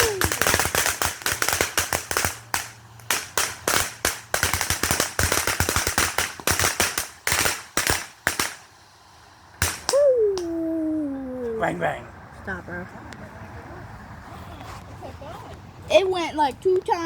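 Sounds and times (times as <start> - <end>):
fireworks cracking and banging: 0.0 - 8.8, 9.5 - 10.5.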